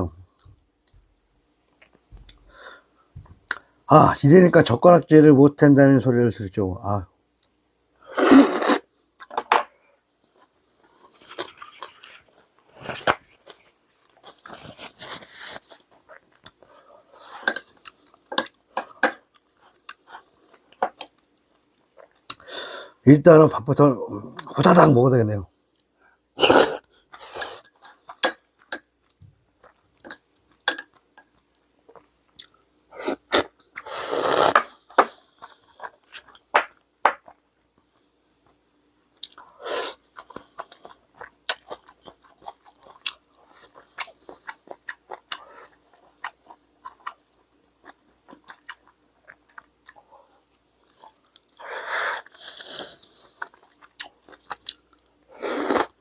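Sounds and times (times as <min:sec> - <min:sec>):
person chewing and crunching: 0:11.1 - 0:22.4, 0:39.2 - 0:56.0.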